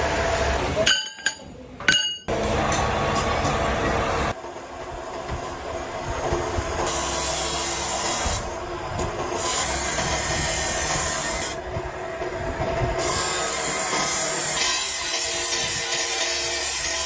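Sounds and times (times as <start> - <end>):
workshop machinery humming: 0.0 - 17.0
harsh rasping metal-cutting: 9.4 - 11.6, 13.0 - 17.0.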